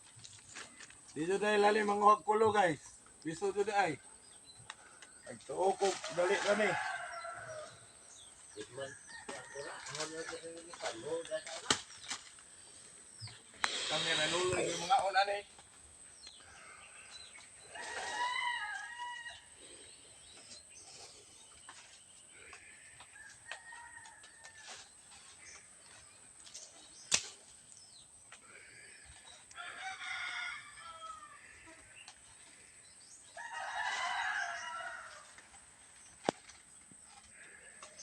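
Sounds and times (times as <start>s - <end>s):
roosters crowing: 5.8s - 11.1s, 16.6s - 20.0s, 22.5s - 25.0s, 29.5s - 32.0s, 33.2s - 35.8s.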